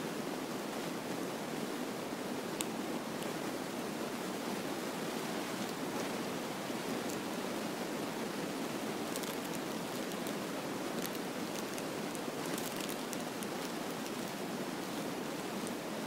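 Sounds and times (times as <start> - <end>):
faint crackles: 5.2 - 16.0.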